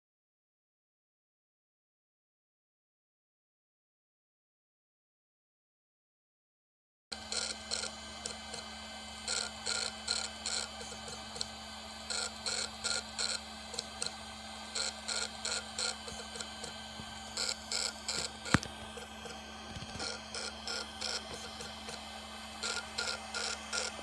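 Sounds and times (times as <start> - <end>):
hard drive hum: 7.1 - 24.0
hard drive mechanical bursts: 7.1 - 24.0.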